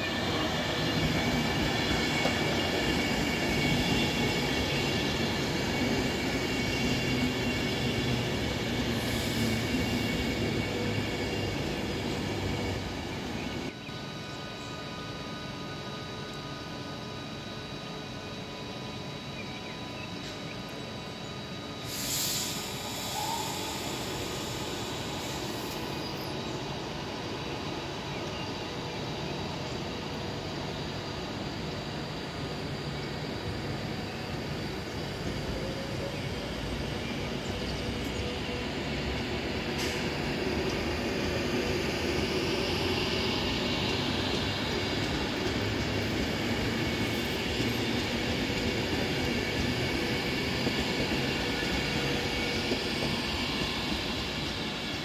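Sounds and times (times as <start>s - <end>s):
train wheels rumbling: 0.0s - 13.8s, 20.2s - 55.0s
high wheel squeal: 21.9s - 26.3s.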